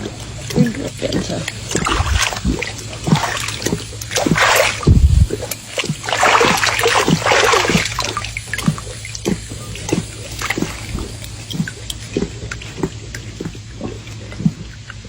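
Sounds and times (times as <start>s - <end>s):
water splashing: 0.0s - 15.0s
heavy low splash: 1.7s - 8.7s.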